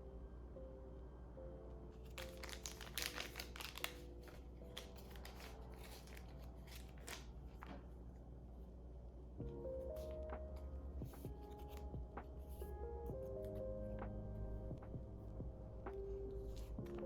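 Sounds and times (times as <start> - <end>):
plastic packaging crinkling: 2.0 - 7.8.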